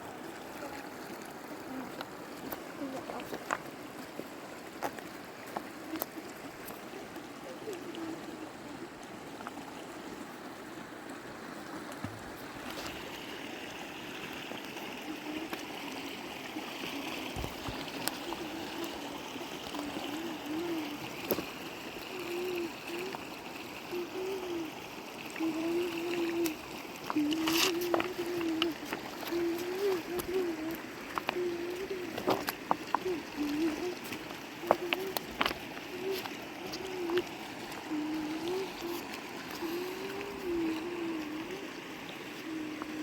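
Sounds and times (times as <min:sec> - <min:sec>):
river water flowing: 0:00.0 - 0:43.0
faint wavering voice: 0:00.2 - 0:02.1, 0:06.9 - 0:09.0, 0:18.2 - 0:21.1, 0:22.1 - 0:24.8, 0:25.4 - 0:43.0.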